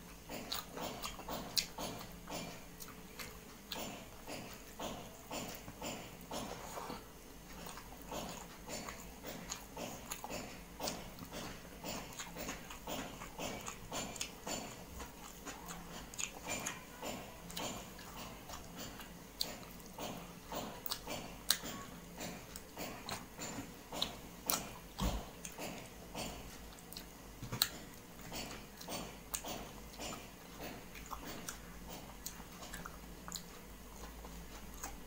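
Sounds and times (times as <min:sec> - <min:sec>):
wet chewing and lip-smacking: 0:00.0 - 0:35.0.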